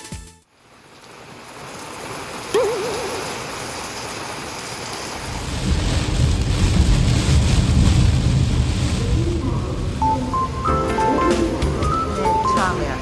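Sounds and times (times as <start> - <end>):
heavy rain falling: 0.5 - 13.0
low rumble: 5.2 - 10.7.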